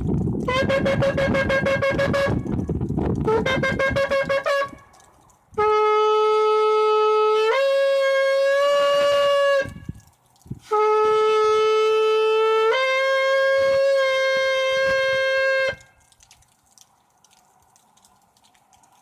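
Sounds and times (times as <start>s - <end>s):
shofar blasts: 0.4s - 10.0s, 10.6s - 16.0s.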